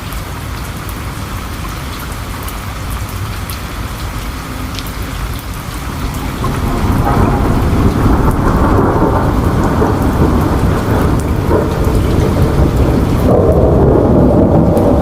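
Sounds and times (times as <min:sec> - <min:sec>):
steady rain: 0:00.0 - 0:15.0
low rumble of thunder: 0:05.1 - 0:15.0.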